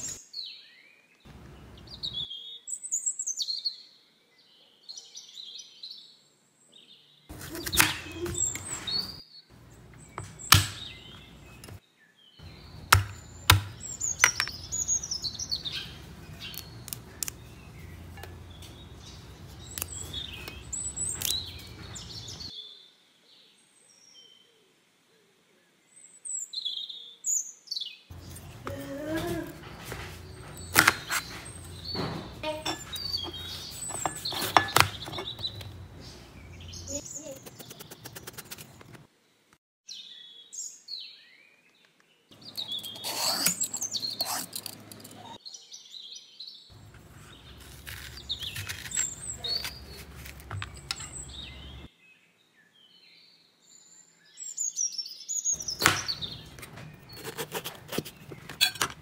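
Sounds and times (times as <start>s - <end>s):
small birds chirping: 0.0s - 24.6s, 25.9s - 39.1s, 39.9s - 59.0s
knife striking cutting board: 10.2s - 11.8s, 12.9s - 14.5s, 29.9s - 35.8s, 47.6s - 51.3s, 55.8s - 56.8s, 57.4s - 59.0s.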